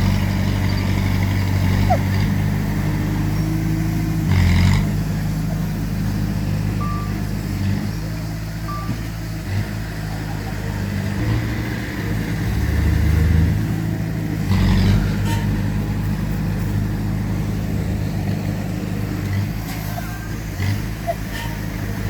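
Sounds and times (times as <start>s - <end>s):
heavy diesel engine revving: 0.0s - 22.0s
reversing beep: 6.8s - 7.2s, 8.7s - 9.1s
metal clank: 15.0s - 16.0s.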